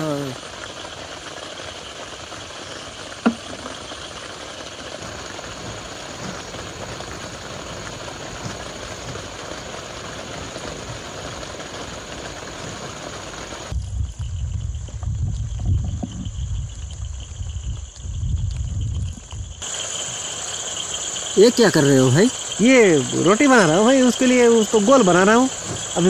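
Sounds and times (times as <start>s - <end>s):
heavy rain falling: 0.0s - 13.8s, 19.6s - 26.0s.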